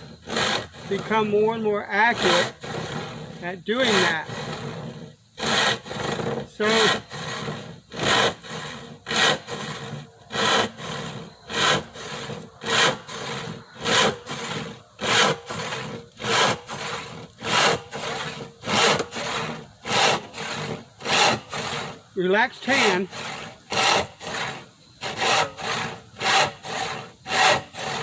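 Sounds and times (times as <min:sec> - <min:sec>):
hand saw cutting wood: 0:00.0 - 0:28.0.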